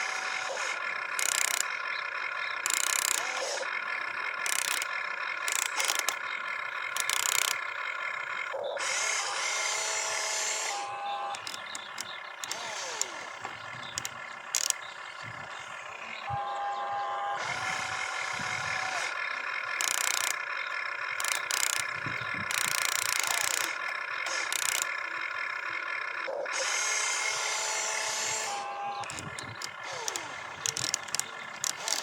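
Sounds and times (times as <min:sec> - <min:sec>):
small electric motors whining: 0:00.0 - 0:32.0
sharp clicks: 0:00.5 - 0:07.7, 0:10.6 - 0:15.0, 0:19.0 - 0:26.8, 0:28.2 - 0:32.0.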